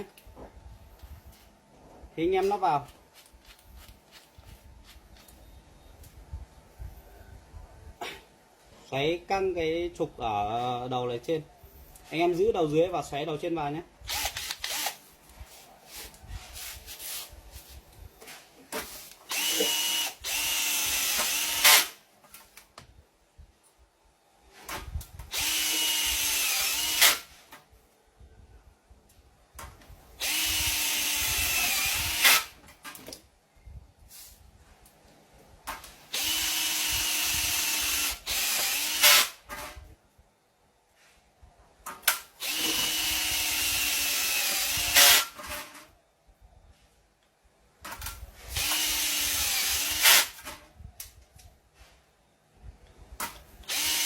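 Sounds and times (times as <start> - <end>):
cordless drill motor whine: 14.1 - 15.0, 19.3 - 22.0, 25.3 - 27.3, 30.2 - 32.6, 36.1 - 39.4, 42.4 - 45.4, 48.5 - 50.4, 53.7 - 54.0.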